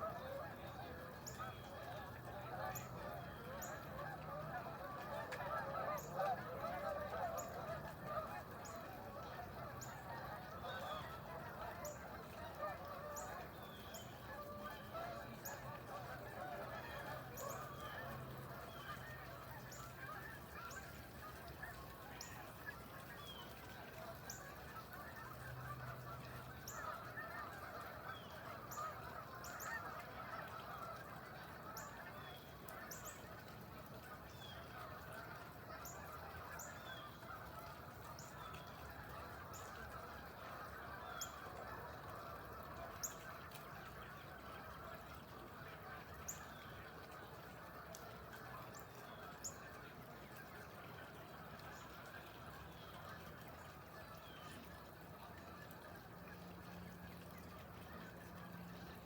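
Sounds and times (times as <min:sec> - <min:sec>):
flock of birds calling: 0:00.0 - 0:59.0.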